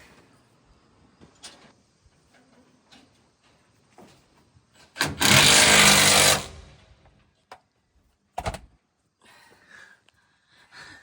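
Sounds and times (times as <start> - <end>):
power tool running: 5.0 - 6.8.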